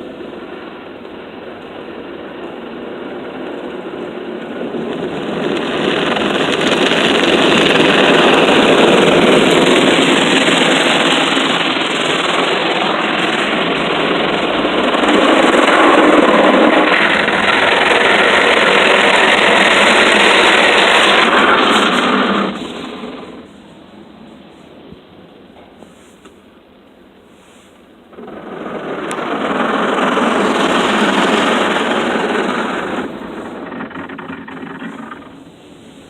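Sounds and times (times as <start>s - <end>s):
car wash spraying water: 4.2s - 23.8s, 27.4s - 36.0s.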